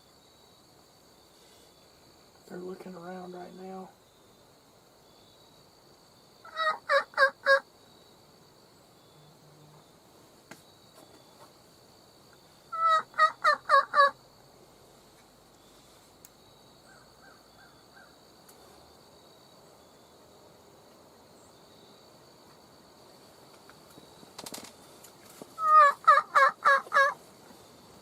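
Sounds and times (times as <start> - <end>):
turkey yelps: 6.4 - 7.6, 12.7 - 14.2, 25.6 - 27.2.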